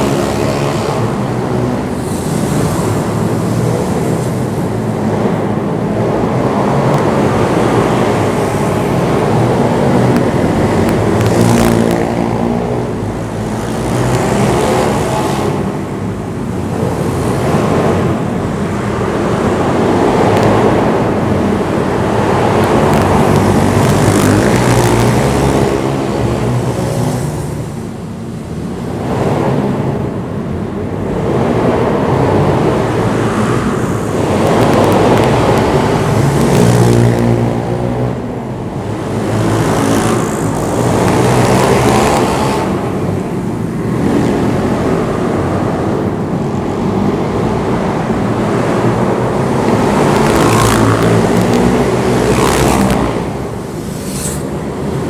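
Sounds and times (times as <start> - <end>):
pit bike engine revving: 6.8 - 15.7, 22.1 - 27.6, 34.2 - 37.9, 38.8 - 43.1, 48.4 - 55.0.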